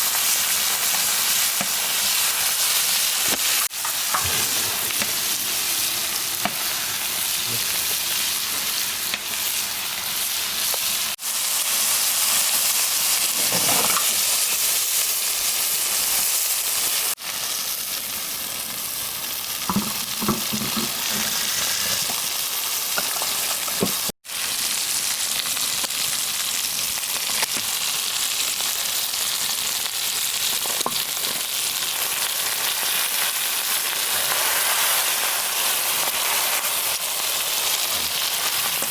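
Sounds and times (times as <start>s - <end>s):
food sizzling in fat: 0.0s - 38.9s.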